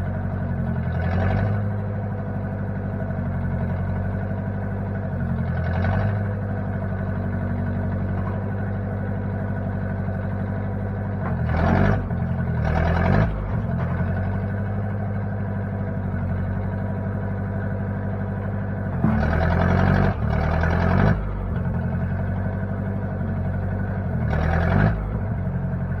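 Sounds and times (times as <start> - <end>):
backhoe engine idling: 0.0 - 26.0.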